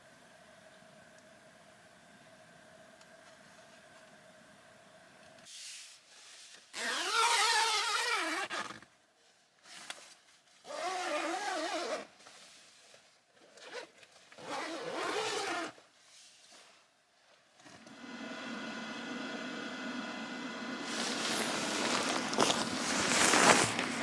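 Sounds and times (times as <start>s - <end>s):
zipper being pulled: 6.7s - 8.8s, 10.7s - 12.1s, 13.6s - 15.8s, 20.8s - 24.0s.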